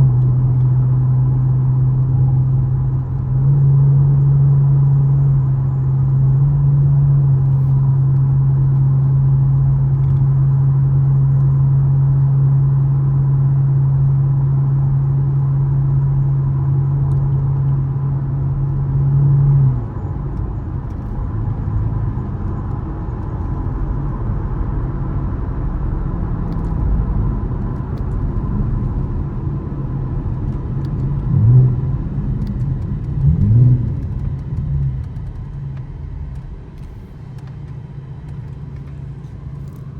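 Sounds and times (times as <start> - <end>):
car engine droning: 0.0 - 39.9
car engine revs: 30.0 - 39.9.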